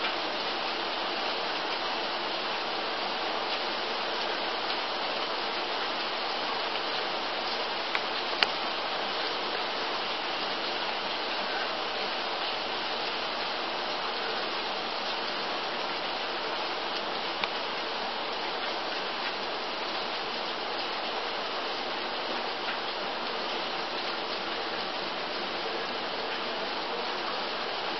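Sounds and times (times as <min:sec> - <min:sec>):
steady rain falling: 0:00.0 - 0:27.9
small tick: 0:07.9 - 0:08.6, 0:17.4 - 0:17.6.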